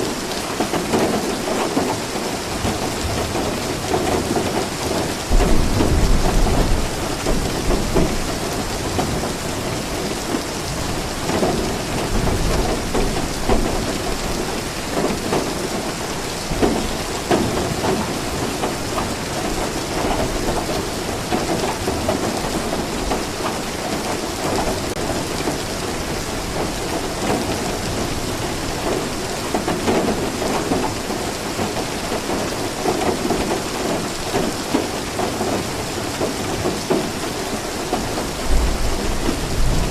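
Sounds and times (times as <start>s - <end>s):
rain falling: 0.0s - 39.9s
low thunder rumble: 5.3s - 9.4s, 38.4s - 39.9s.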